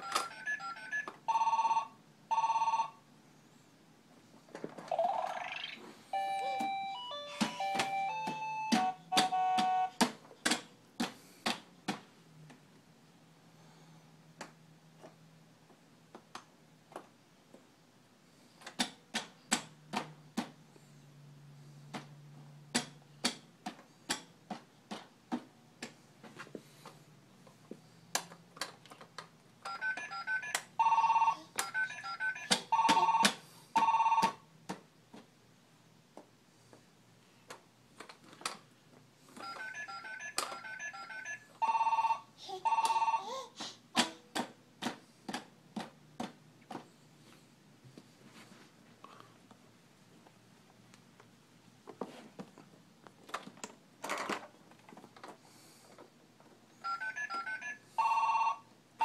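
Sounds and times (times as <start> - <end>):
telephone-like beeping and trilling: 0.0 - 3.0, 29.7 - 34.4, 39.4 - 43.3, 56.8 - 58.6.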